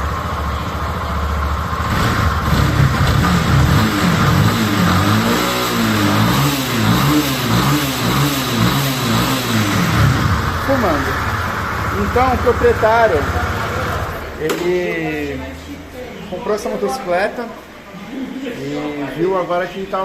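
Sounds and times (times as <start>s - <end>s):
engine knocking noise: 0.0s - 5.3s
motorcycle engine revving: 0.0s - 14.4s.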